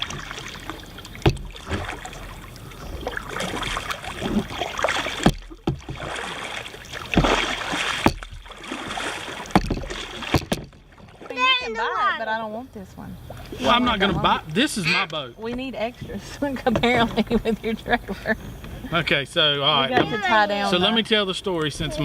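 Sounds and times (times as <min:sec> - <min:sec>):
paddle splashing in water: 0:00.0 - 0:12.2
sharp knocks: 0:01.2 - 0:01.9, 0:05.2 - 0:06.3, 0:07.1 - 0:08.6, 0:09.4 - 0:10.8.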